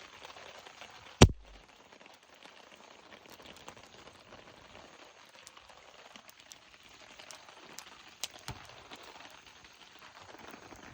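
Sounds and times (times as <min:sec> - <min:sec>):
campfire crackling: 0:00.0 - 0:10.9
fire pops: 0:01.2 - 0:01.6, 0:06.3 - 0:09.4.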